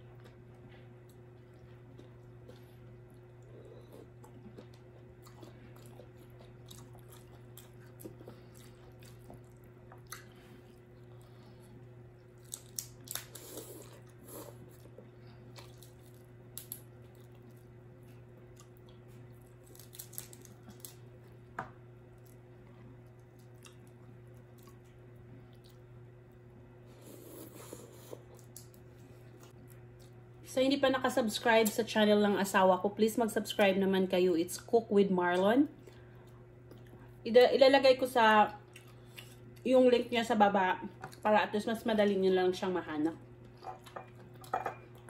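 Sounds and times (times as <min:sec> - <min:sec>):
steady low hum: 0:00.0 - 0:45.0
people chewing: 0:00.1 - 0:21.0, 0:22.2 - 0:25.8, 0:35.8 - 0:37.2, 0:38.6 - 0:39.6.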